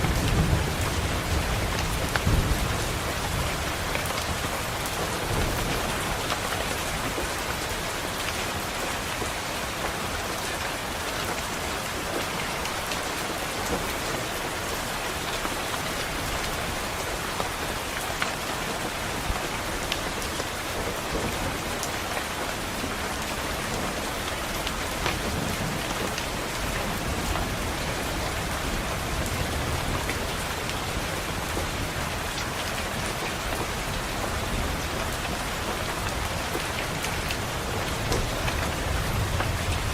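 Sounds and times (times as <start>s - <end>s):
distant thunder rumble: 0.0s - 7.3s
rain pattering on window glass: 0.0s - 39.9s.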